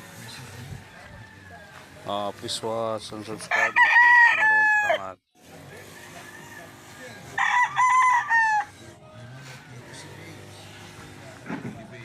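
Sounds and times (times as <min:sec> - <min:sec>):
rooster crowing: 0:00.8 - 0:02.0, 0:03.4 - 0:05.1, 0:05.8 - 0:08.8.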